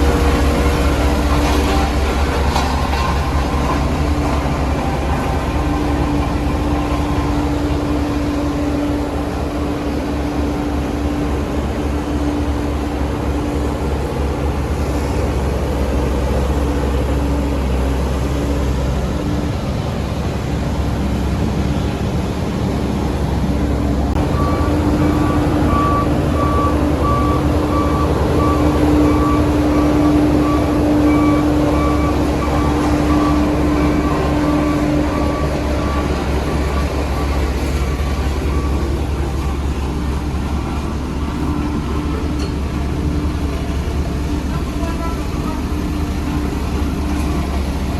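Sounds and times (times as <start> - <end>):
diesel engine under load: 0.0 - 47.9
reversing alarm beeping: 24.2 - 47.9.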